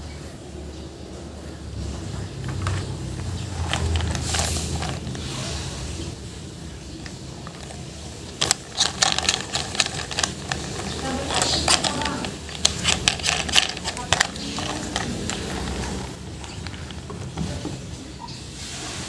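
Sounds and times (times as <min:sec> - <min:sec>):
plastic toy clicks and knocks: 0:02.4 - 0:05.2, 0:07.0 - 0:17.4.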